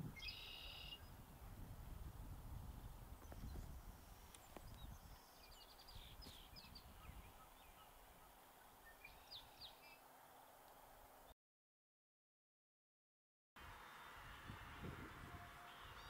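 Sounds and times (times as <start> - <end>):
faint outdoor ambience: 0.0 - 11.3, 13.6 - 16.0
high bird chirps: 0.2 - 1.1.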